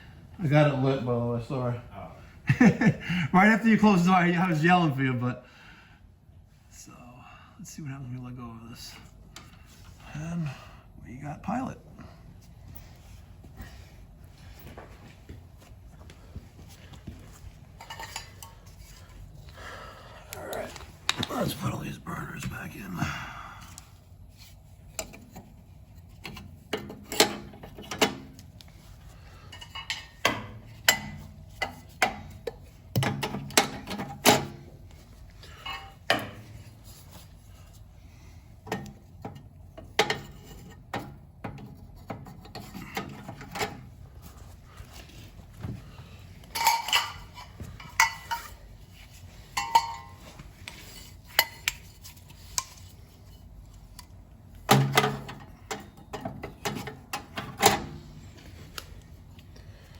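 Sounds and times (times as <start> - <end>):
metal burners clinking and scraping: 17.6 - 19.4, 24.3 - 34.8, 35.4 - 37.3, 38.6 - 58.7.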